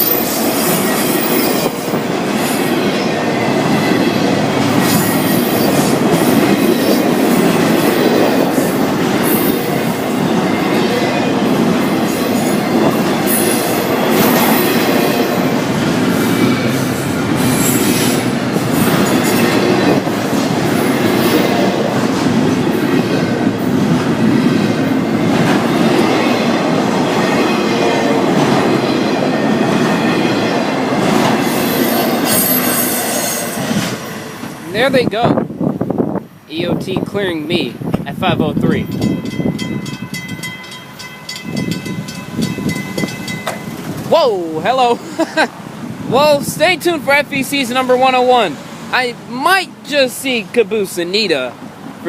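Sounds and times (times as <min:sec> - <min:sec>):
high wheel squeal: 0:00.0 - 0:06.1, 0:31.4 - 0:33.8
train wheels clacking on rails: 0:38.9 - 0:44.1.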